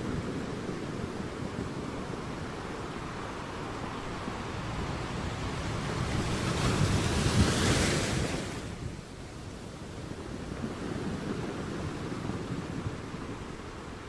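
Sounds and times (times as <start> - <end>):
steady surf wash: 0.0 - 14.0
sea wave breaking: 3.0 - 8.8.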